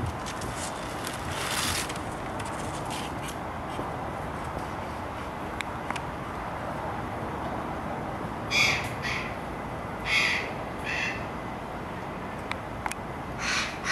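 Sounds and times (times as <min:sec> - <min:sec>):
outdoor background noise: 0:00.0 - 0:13.9
bird cawing: 0:08.5 - 0:09.4, 0:10.0 - 0:11.3, 0:13.4 - 0:13.9.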